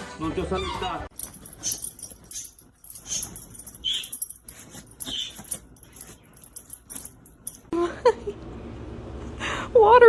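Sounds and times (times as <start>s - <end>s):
dog whining: 0.5s - 6.6s
jingling clicks: 1.1s - 7.7s.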